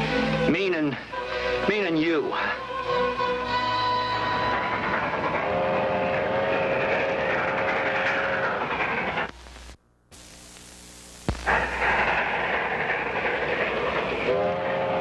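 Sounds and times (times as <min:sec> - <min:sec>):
train rumbling clatter: 0:02.2 - 0:09.3, 0:11.5 - 0:15.0
faint hum: 0:03.7 - 0:15.0.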